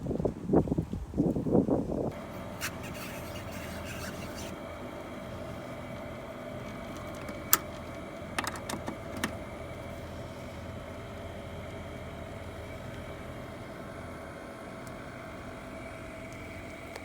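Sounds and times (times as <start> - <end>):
machine hum: 2.1 - 17.0
sharp clicks and knocks: 6.7 - 9.4.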